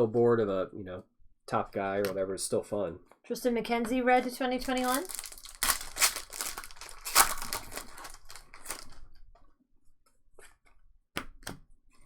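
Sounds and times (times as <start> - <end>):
wrapper being torn and crinkled: 4.6 - 9.1.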